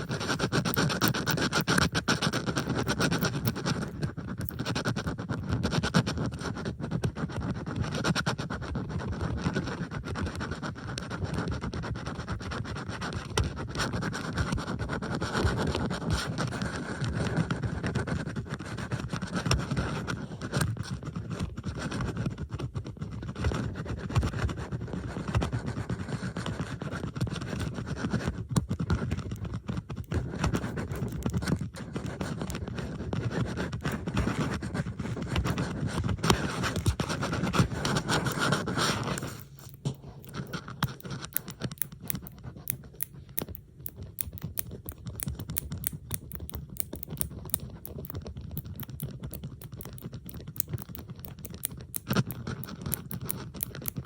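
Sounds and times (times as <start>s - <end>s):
metal bobby pins scratching: 0.0s - 5.2s, 29.2s - 32.8s, 33.6s - 54.0s.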